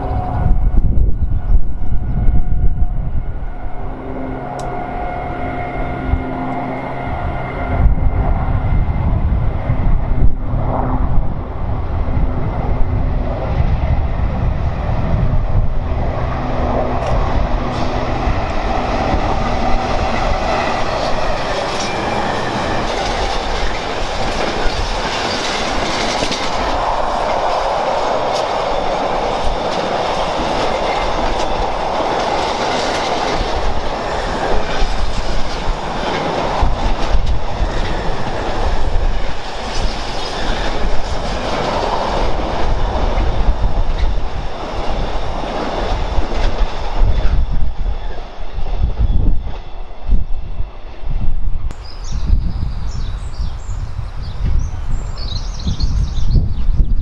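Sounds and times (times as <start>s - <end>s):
diesel locomotive engine drumming: 0.0s - 51.7s
train wheels clicking over joints: 17.0s - 48.1s.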